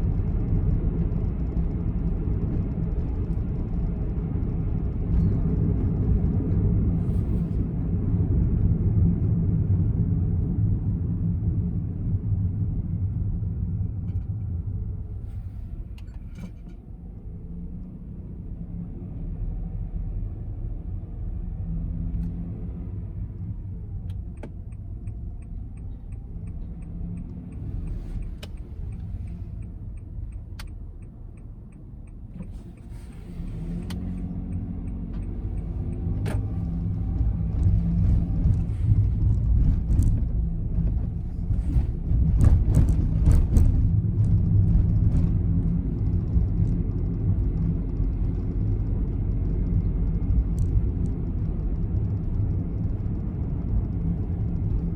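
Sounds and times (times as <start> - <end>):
car engine and road rumble: 0.0 - 54.9
regular ticks: 24.1 - 32.9.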